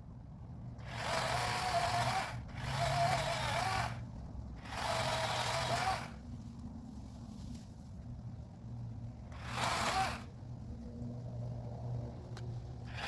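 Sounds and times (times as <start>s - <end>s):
power saw cutting wood: 0.8s - 4.0s, 4.6s - 6.2s, 9.3s - 10.3s.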